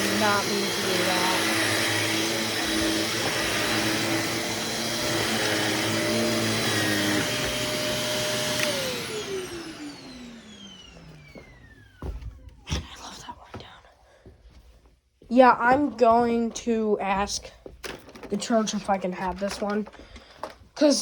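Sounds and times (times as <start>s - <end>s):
vacuum cleaner motor whine: 0.0s - 12.6s.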